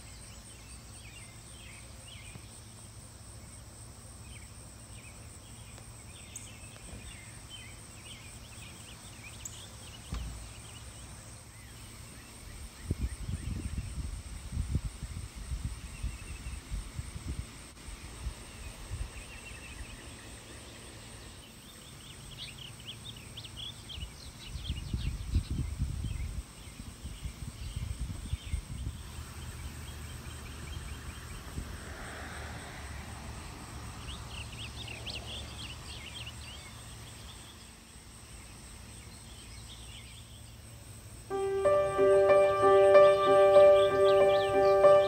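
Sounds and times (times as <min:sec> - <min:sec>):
wind rumble on microphone: 0:12.6 - 0:19.9, 0:24.5 - 0:29.3, 0:30.8 - 0:32.0
birds chirping: 0:41.3 - 0:45.0
soft music: 0:41.3 - 0:45.0.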